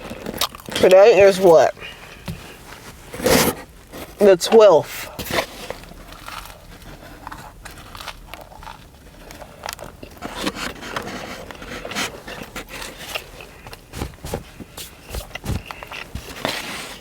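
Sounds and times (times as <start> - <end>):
person chewing crunchy sandwich: 0.0 - 0.8, 5.6 - 14.0.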